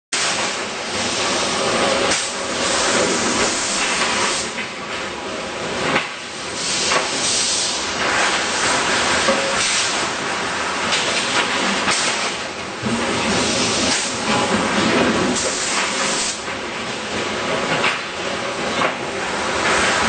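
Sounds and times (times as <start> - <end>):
welding machine hissing: 0.2 - 4.6, 6.4 - 16.5.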